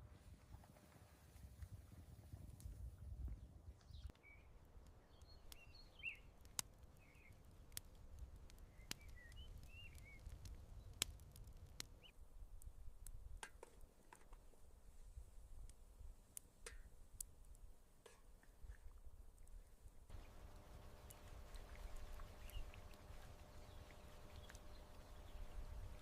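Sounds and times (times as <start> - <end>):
small birds chirping faintly: 0.2 - 26.0
low background rumble: 20.1 - 26.0.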